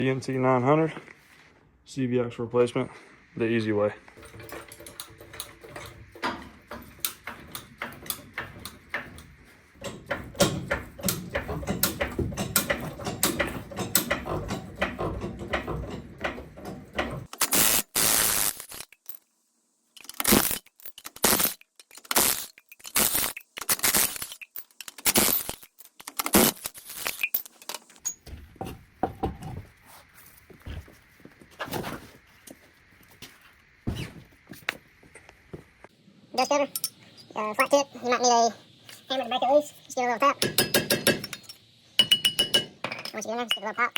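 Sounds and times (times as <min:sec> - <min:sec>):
metal tools clanking: 0:04.2 - 0:17.3, 0:40.4 - 0:43.9.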